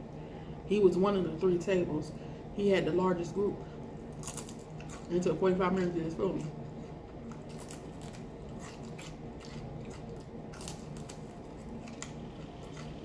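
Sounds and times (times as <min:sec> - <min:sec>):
chewing crispy fried fish: 0:04.1 - 0:05.2, 0:06.6 - 0:13.0.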